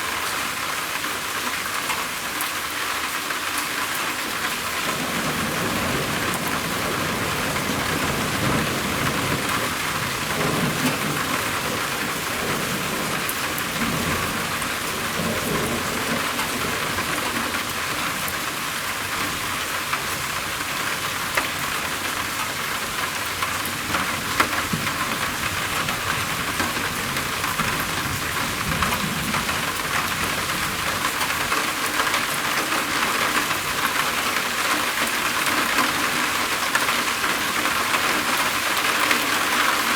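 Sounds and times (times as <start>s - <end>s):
heavy rain drumming on a roof: 0.0s - 39.9s
thunder rumbling: 4.8s - 18.6s.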